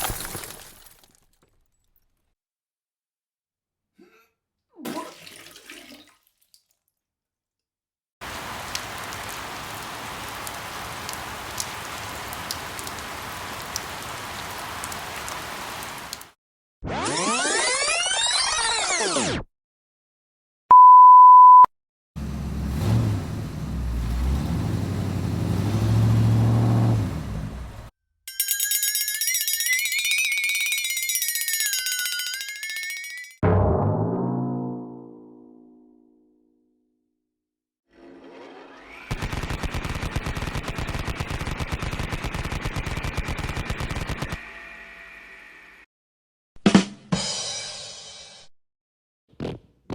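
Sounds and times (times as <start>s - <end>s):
censor bleep tone: 20.7s - 21.7s
rapid machine gun fire: 39.1s - 44.4s.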